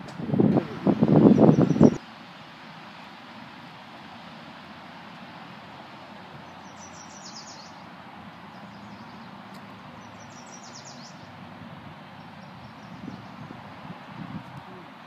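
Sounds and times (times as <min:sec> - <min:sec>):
songbird singing: 0:00.0 - 0:03.1, 0:06.1 - 0:15.0
outdoor background hiss: 0:00.0 - 0:15.0.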